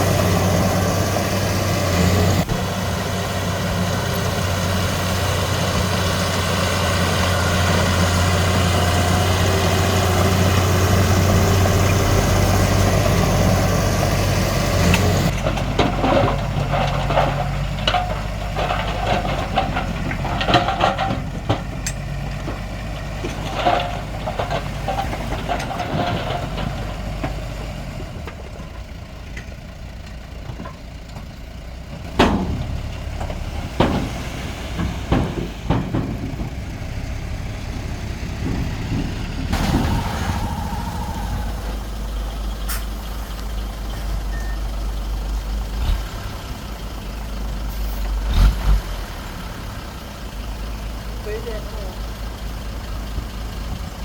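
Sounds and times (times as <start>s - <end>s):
diesel machinery running: 0.0s - 54.0s
clanks and knocks: 14.8s - 28.6s, 29.3s - 41.9s.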